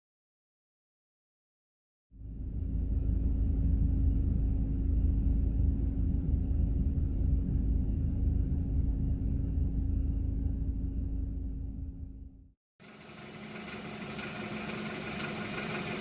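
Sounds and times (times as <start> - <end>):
car engine idling: 12.8 - 16.0.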